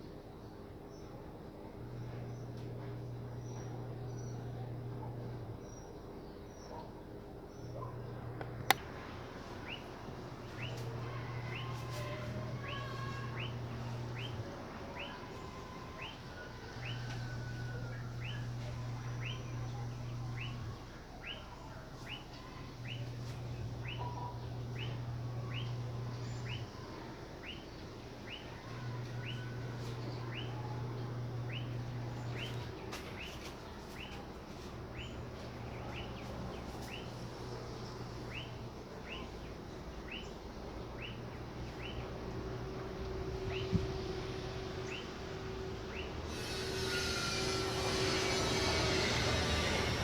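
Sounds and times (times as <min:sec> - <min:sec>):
low hum: 0:07.6 - 0:27.2, 0:28.0 - 0:33.8, 0:41.1 - 0:50.0.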